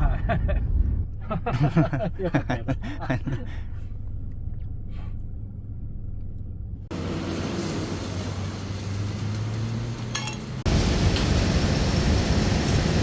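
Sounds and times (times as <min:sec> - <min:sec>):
low rumble: 0:00.0 - 0:06.9
light clink: 0:10.1 - 0:10.5.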